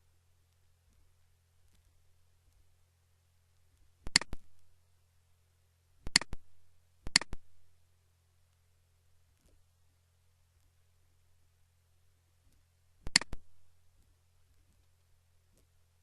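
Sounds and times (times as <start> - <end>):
computer mouse clicking: 4.1 - 4.5, 6.1 - 6.4, 7.1 - 7.4, 13.0 - 13.4.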